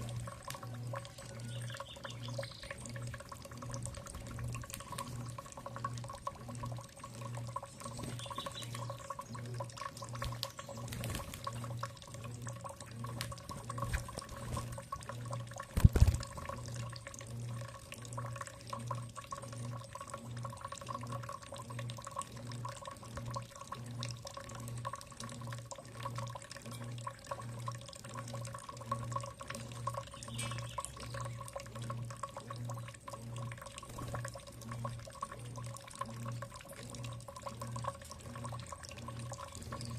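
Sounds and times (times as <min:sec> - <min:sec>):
small ticks: 0:00.0 - 0:39.9
water dripping and trickling: 0:00.0 - 0:39.9
faint bird chirps: 0:01.2 - 0:02.9, 0:07.7 - 0:11.0, 0:30.1 - 0:31.5.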